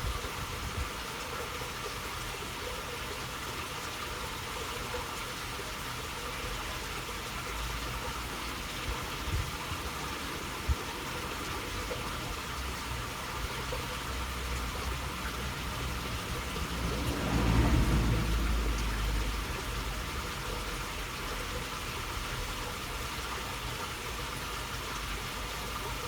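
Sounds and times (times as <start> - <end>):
water rushing through a channel: 0.0 - 26.0
low rumble: 14.8 - 20.4.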